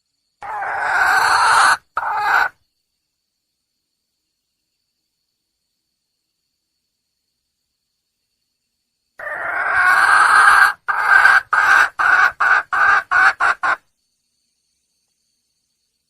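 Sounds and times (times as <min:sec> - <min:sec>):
junglefowl hen calling: 0:00.4 - 0:02.6, 0:09.2 - 0:13.8.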